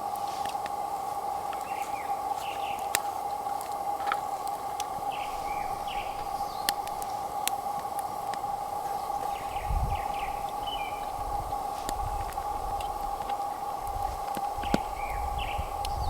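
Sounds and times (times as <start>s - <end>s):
small birds chirping: 0.0s - 16.0s
steady high hum: 0.0s - 16.0s
sharp clicks: 2.7s - 15.1s.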